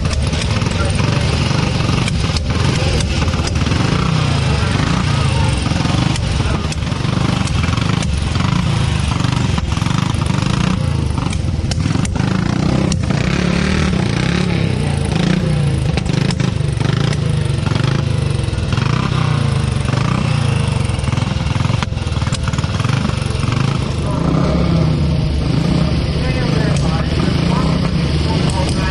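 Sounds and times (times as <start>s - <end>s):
motorcycle engine rumbling: 0.0s - 28.9s.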